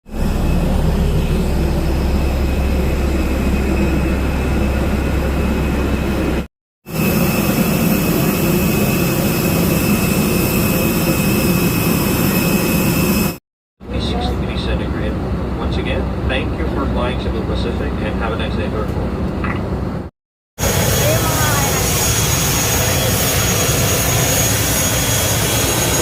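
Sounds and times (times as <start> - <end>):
steady high whine: 0.1 - 19.9
airliner engine drone in cabin: 0.1 - 26.0.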